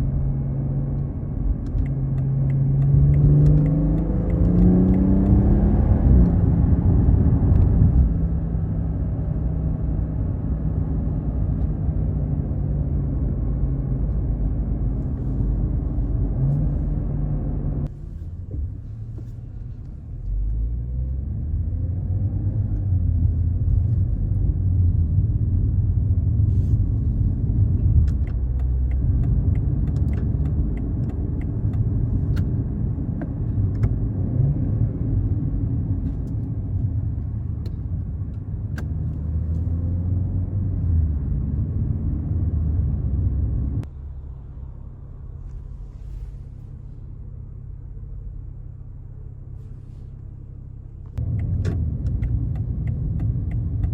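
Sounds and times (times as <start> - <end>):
car engine under load: 0.0 - 53.9.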